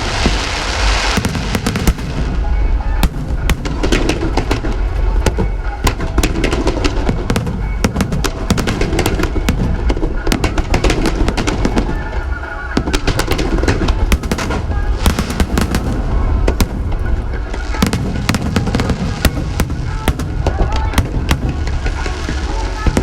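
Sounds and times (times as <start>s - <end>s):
fireworks bangs and crackles: 0.0s - 23.0s
low rumble: 13.8s - 23.0s.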